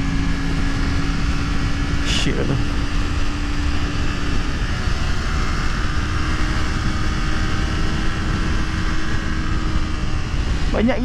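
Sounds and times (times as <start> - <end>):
motorcycle engine cruising: 0.0 - 11.0
wind and road noise: 0.0 - 11.0.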